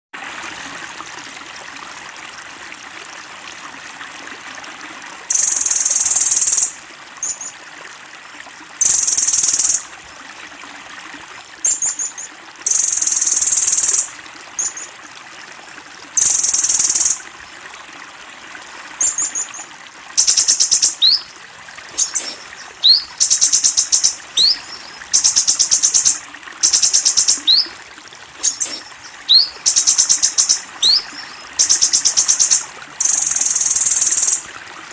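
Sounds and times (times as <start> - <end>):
faint steady hiss: 0.4 - 34.9
bird singing buzzy trills: 19.0 - 27.7, 28.4 - 34.4.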